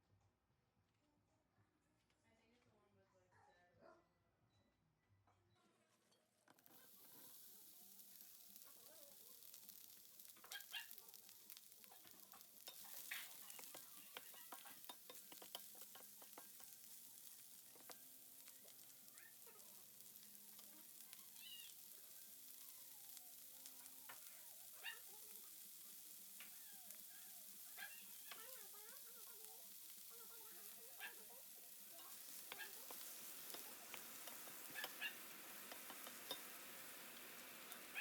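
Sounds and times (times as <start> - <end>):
food sizzling in a pan: 6.6 - 38.0
utensil clicking and scraping: 10.3 - 19.0, 28.0 - 38.0.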